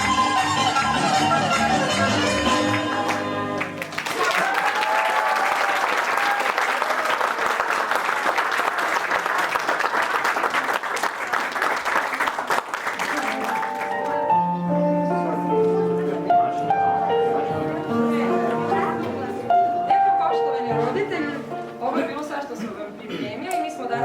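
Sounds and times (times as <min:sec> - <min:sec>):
audience applauding: 0:02.6 - 0:14.3.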